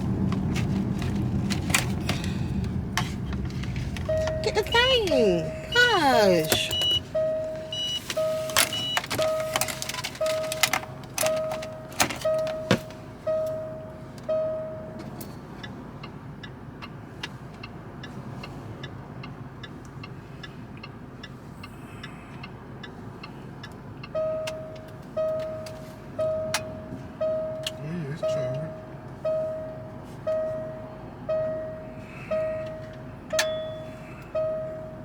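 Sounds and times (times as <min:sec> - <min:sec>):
clicks and knocks of handling things: 0:00.2 - 0:04.4, 0:08.0 - 0:13.0
car warning chime dinging: 0:03.9 - 0:17.4, 0:22.4 - 0:35.0.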